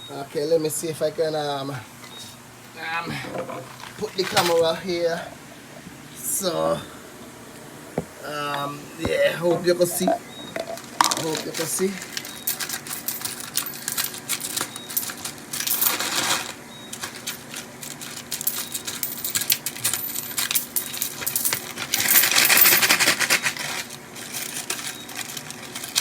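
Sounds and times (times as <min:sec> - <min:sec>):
coins rattling in a bottle: 0:09.9 - 0:26.0.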